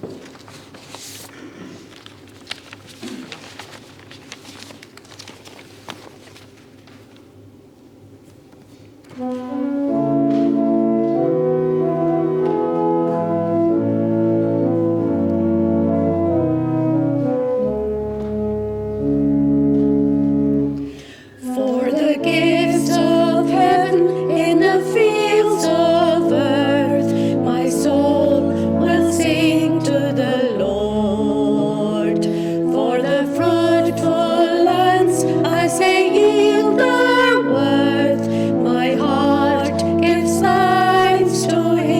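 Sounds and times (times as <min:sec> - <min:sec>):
organ playing sustained chords: 0:09.1 - 0:41.9
voices singing: 0:21.4 - 0:41.9.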